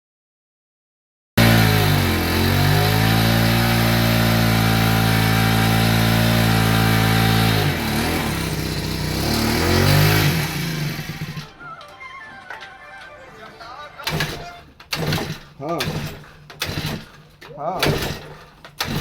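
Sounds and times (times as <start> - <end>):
small sprayer pump engine running: 1.4 - 11.5, 18.8 - 19.0.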